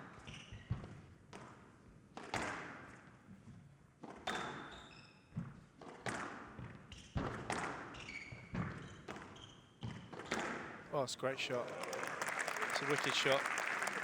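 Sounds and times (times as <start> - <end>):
court shoes squeaking: 0.1 - 1.5, 4.1 - 10.8
squash ball hitting rackets and walls: 0.6 - 3.1, 4.0 - 10.9.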